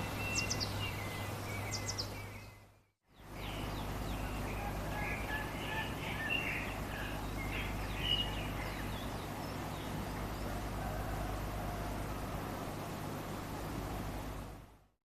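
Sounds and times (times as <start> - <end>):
small birds chirping and trilling: 0.0 - 14.6
background hiss: 3.2 - 14.8.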